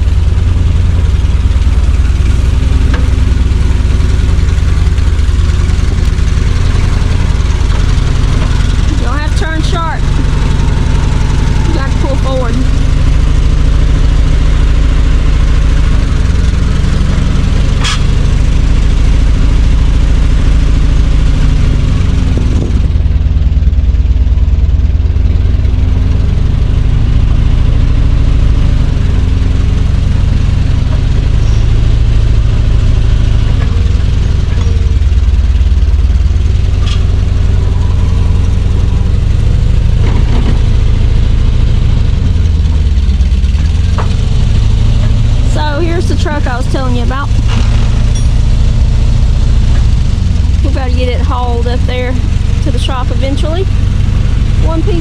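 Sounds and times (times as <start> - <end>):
truck engine revving: 0.0 - 55.0.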